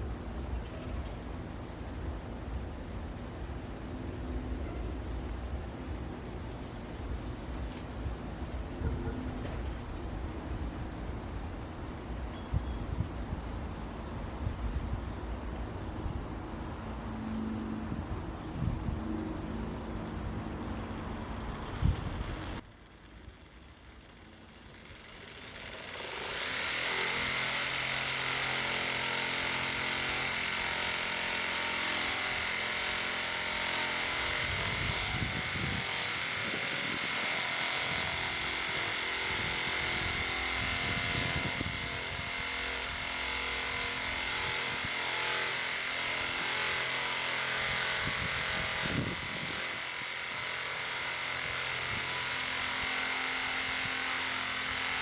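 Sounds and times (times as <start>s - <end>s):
machine with high whine: 0.0s - 55.0s.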